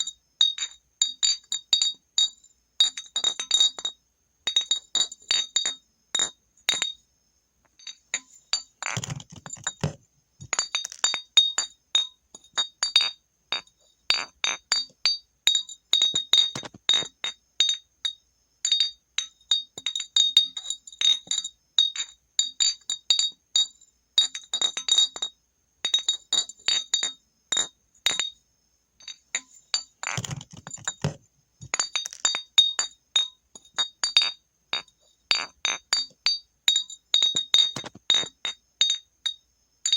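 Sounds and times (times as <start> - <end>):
glass bottle clinking: 2.8 - 7.0, 7.8 - 15.2, 16.0 - 17.8, 25.9 - 28.4, 29.0 - 39.0
heavy glass clatter: 7.8 - 15.2, 16.0 - 17.1, 29.0 - 39.0.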